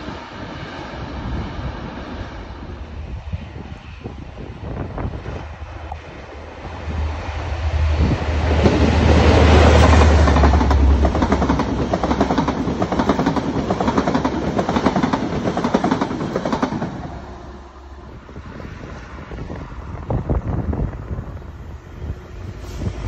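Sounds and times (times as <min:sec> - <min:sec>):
diesel locomotive engine rumble: 0:00.0 - 0:23.0
wheels clacking over rail joints: 0:08.2 - 0:17.1.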